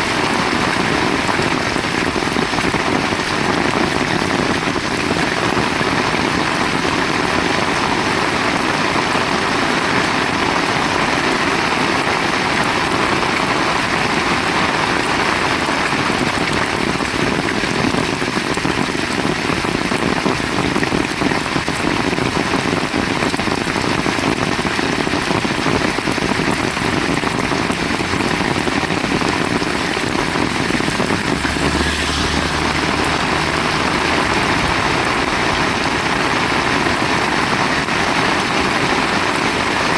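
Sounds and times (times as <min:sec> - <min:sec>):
heavy rain pouring: 0:00.0 - 0:39.9
low rumble: 0:27.6 - 0:38.1.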